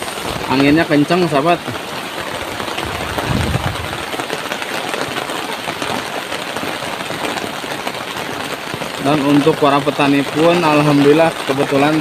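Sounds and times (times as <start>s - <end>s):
heavy rain pouring: 0.0s - 12.0s
low rumble: 2.8s - 4.1s.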